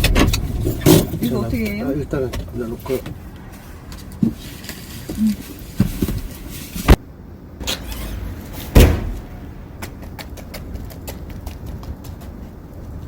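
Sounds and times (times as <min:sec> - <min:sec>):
heavy thuds: 0:08.4 - 0:11.1.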